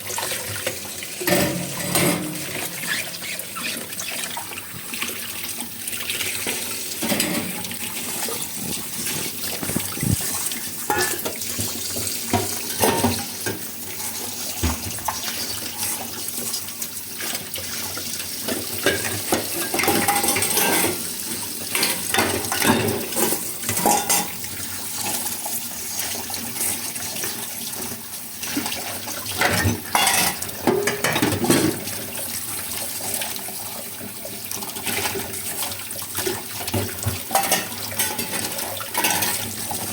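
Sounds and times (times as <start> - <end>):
tap water pouring into sink: 0.0 - 39.9
dishes and cutlery clinking: 1.2 - 3.1, 7.0 - 7.7, 10.9 - 11.4, 12.3 - 13.6, 18.5 - 21.0, 21.7 - 24.4, 29.4 - 31.9, 36.7 - 39.5.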